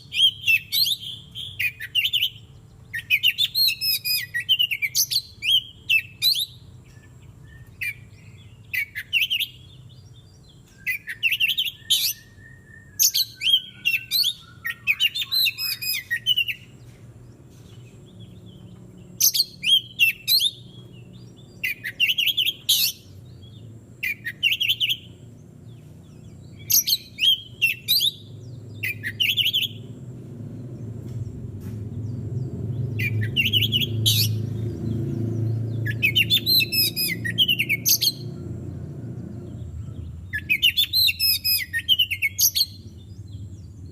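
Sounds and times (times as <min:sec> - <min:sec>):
bird chirps and whistles: 0:00.0 - 0:09.7, 0:10.8 - 0:16.7, 0:19.2 - 0:20.8, 0:21.6 - 0:23.2, 0:24.0 - 0:25.1, 0:26.5 - 0:29.8, 0:32.9 - 0:34.4, 0:35.8 - 0:38.3, 0:40.3 - 0:42.8
falling bird whistle: 0:10.8 - 0:16.7, 0:35.8 - 0:38.2, 0:40.3 - 0:42.8.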